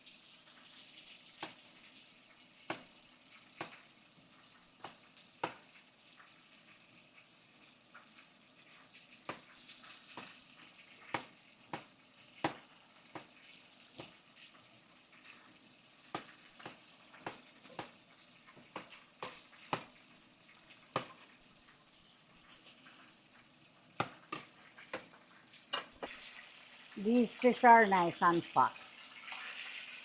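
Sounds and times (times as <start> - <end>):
fish sizzling in hot oil: 0.0 - 30.0
oil popping: 8.7 - 26.8.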